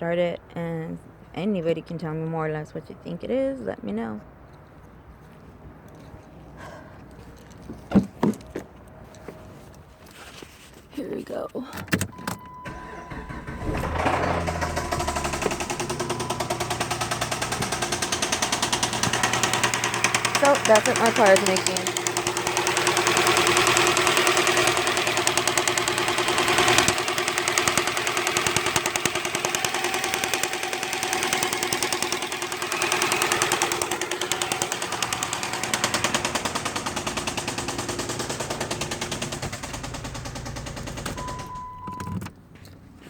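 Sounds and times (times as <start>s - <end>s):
engine knocking clatter: 12.7s - 41.8s.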